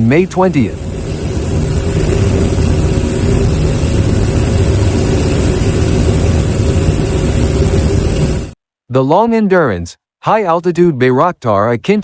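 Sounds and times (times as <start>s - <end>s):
engine drone: 0.0s - 8.6s.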